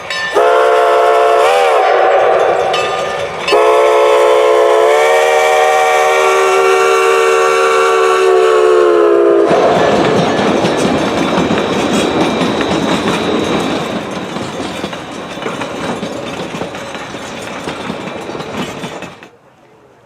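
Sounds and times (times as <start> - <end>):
train cars clattering over rails: 0.0 - 4.9, 9.4 - 19.4
steam train rolling past: 0.0 - 20.0.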